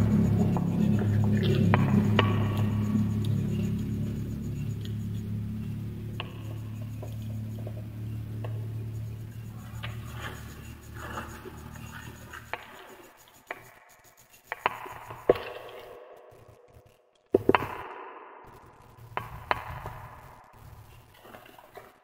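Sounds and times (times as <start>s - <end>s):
low steady hum: 0.0s - 13.4s
wood fire crackling and popping: 14.5s - 22.0s.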